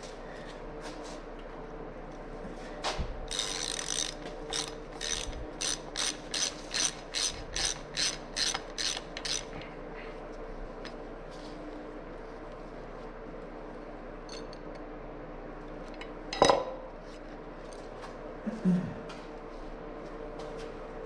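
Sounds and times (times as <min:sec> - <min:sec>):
ratchet wrench clicking: 0:03.3 - 0:09.5.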